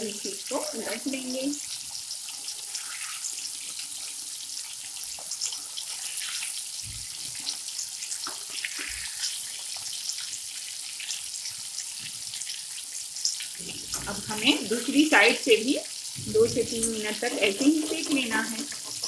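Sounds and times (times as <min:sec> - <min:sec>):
fish sizzling in hot oil: 0:00.0 - 0:19.0
spatula turning fish: 0:16.0 - 0:19.0
dull low thumps: 0:16.2 - 0:17.0.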